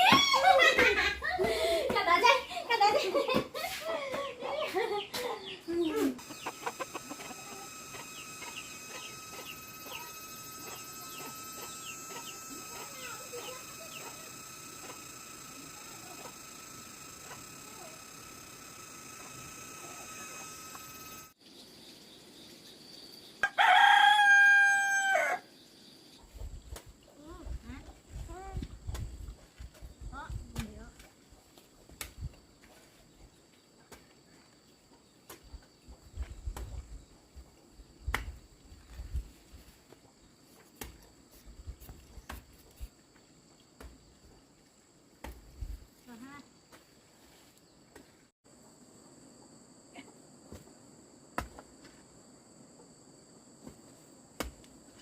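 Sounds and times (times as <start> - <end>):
rooster crowing: 6.2 - 21.3, 23.4 - 25.5
high-pitched ringing tone: 6.2 - 21.4
insect chirring: 6.2 - 23.4.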